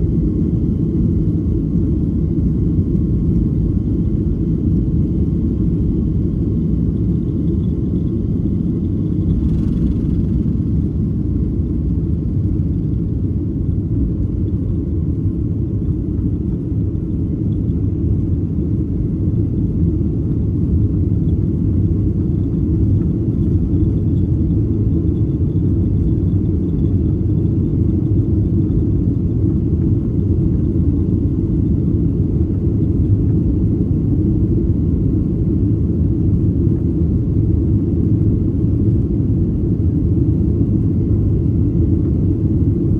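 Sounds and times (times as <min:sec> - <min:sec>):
jet engines rumbling in cabin: 0:00.0 - 0:42.9.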